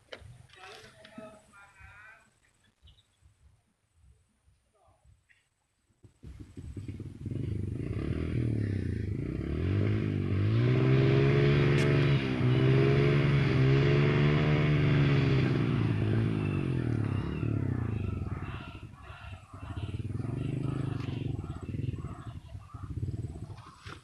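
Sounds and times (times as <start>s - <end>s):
small motorcycle engine revving: 6.2s - 24.0s.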